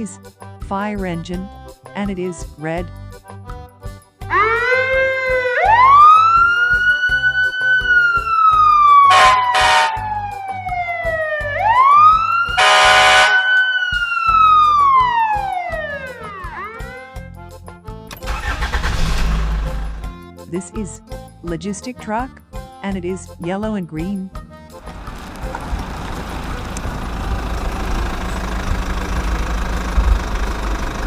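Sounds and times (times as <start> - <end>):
light background music: 0.0 - 27.4
fire engine siren wailing: 4.3 - 17.3
horn blasts: 9.1 - 10.0, 12.6 - 13.8.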